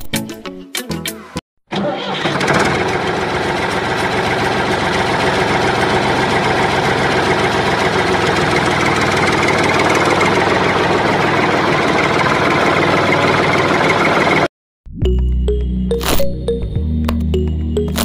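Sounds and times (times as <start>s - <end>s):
tractor engine idling: 1.8s - 14.5s.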